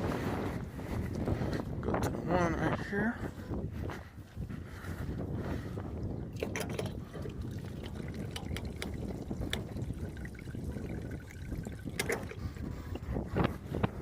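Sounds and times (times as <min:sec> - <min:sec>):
wind rumble on microphone: 0:00.0 - 0:14.0
fuel trickling into a cup: 0:06.2 - 0:13.0.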